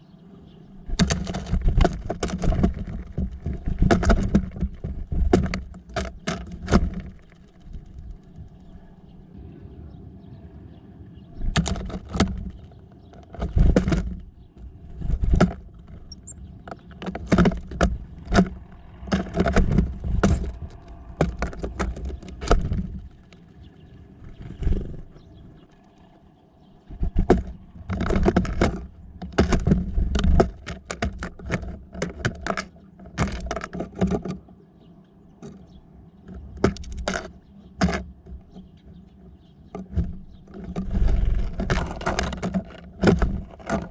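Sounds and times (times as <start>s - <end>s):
birds pecking and tapping: 0.0s - 9.3s, 11.3s - 43.9s.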